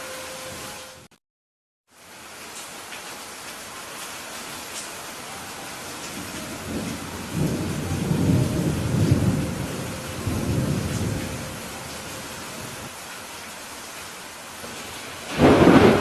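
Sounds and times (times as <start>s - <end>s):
steady rain: 0.0s - 1.1s, 1.9s - 16.0s
rolling thunder: 6.0s - 12.9s, 15.2s - 16.0s.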